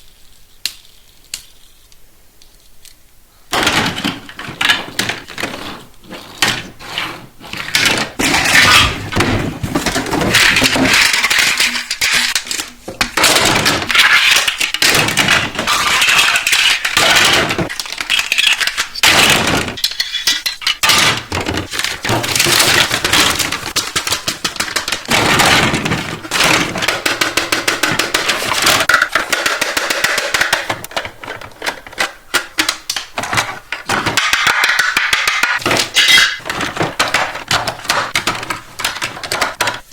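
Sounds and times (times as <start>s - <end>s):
plastic packaging crinkling: 3.5s - 34.7s.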